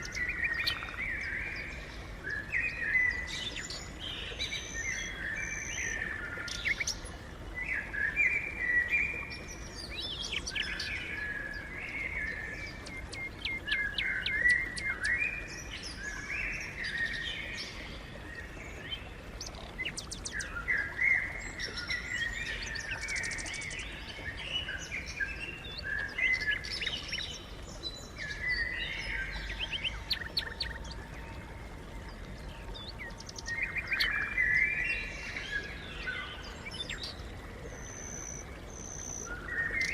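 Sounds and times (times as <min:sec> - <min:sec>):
sparrows chirping: 0:28.2 - 0:31.0.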